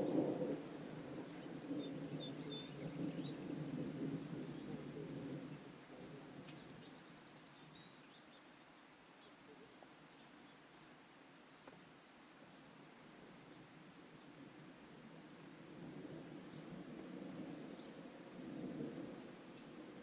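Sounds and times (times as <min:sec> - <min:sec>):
rolling thunder: 0:00.0 - 0:06.9, 0:14.4 - 0:20.0
birds chirping: 0:00.8 - 0:11.8.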